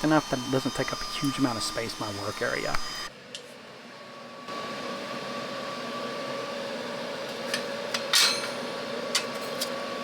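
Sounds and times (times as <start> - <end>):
laser engraver machine hum: 0.0 - 3.1.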